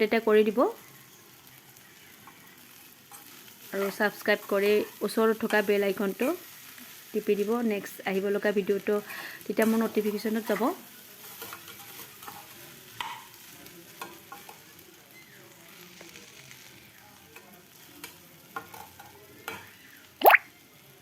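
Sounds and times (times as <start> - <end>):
food sizzling in a pan: 0.0 - 21.0
spatula scraping a pan: 10.5 - 14.6.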